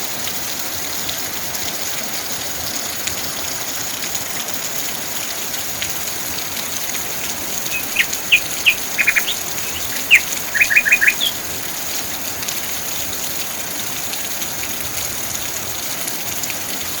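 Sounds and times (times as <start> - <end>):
rain hiss: 0.0 - 17.0
bird chirping: 6.8 - 11.6.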